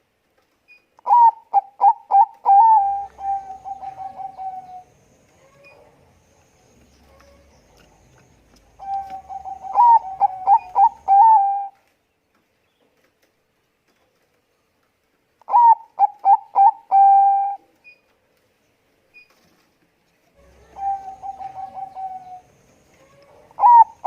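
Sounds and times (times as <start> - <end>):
dove cooing: 1.0 - 6.0, 7.0 - 11.8, 15.5 - 17.7, 20.4 - 24.0.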